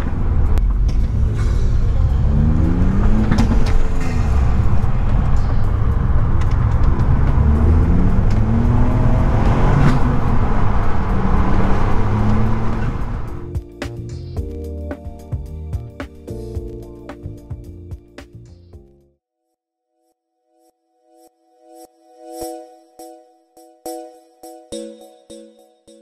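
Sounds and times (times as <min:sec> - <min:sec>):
car engine accelerating: 0:00.0 - 0:13.5
low road rumble: 0:00.0 - 0:14.6.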